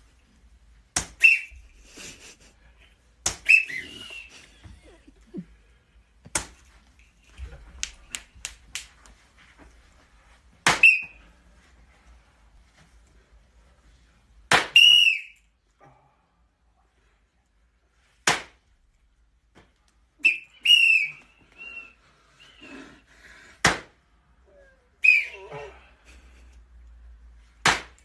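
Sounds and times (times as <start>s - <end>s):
hand slaps: 0.9s - 1.5s, 3.2s - 3.7s, 6.2s - 6.8s, 7.4s - 9.2s, 10.6s - 11.1s, 14.5s - 14.8s, 18.2s - 18.6s, 23.6s - 24.0s, 27.6s - 28.0s
high whistle-like squeals: 1.2s - 1.7s, 3.4s - 4.5s, 10.8s - 11.3s, 14.8s - 15.5s, 20.2s - 22.7s, 24.5s - 25.8s.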